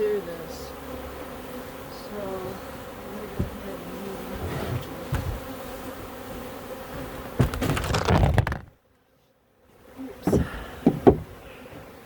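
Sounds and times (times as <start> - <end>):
bees buzzing: 0.0 - 8.8
rustling of hive parts: 1.8 - 8.8
sharp knocks: 10.3 - 11.4.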